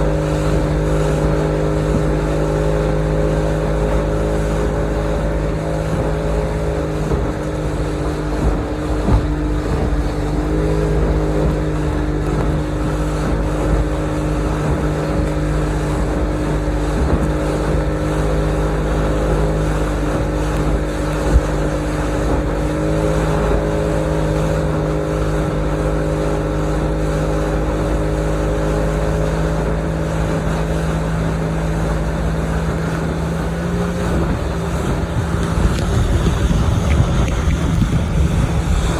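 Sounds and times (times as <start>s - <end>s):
motorboat engine running: 0.0s - 38.9s
low rumble: 32.8s - 38.9s.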